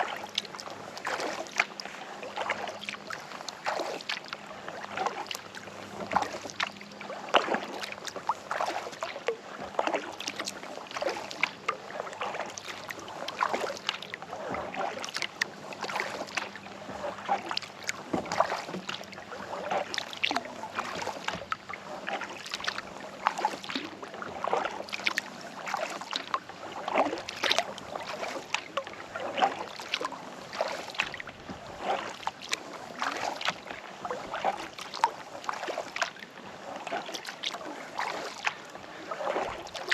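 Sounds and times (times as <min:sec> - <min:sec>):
paddle splashing in water: 0:00.0 - 0:39.9.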